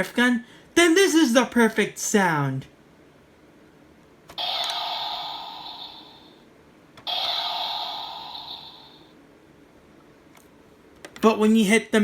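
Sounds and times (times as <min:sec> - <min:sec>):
electronic toy sound effect: 0:04.4 - 0:06.4, 0:07.0 - 0:09.1.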